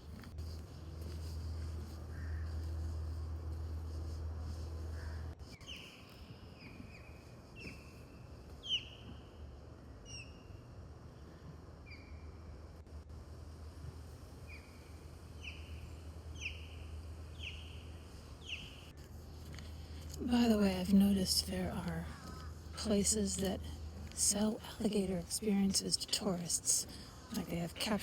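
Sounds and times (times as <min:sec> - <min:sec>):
low steady rumble: 0:00.0 - 0:05.5, 0:10.6 - 0:28.0
small birds chirping: 0:05.0 - 0:09.4, 0:14.5 - 0:18.9.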